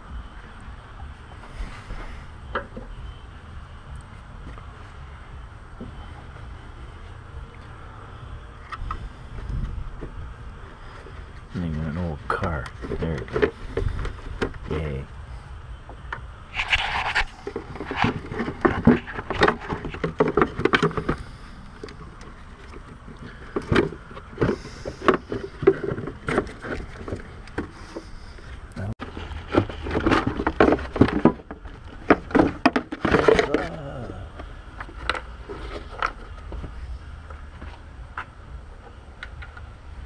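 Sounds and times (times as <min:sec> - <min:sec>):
hand tools on car parts: 0:16.0 - 0:39.7.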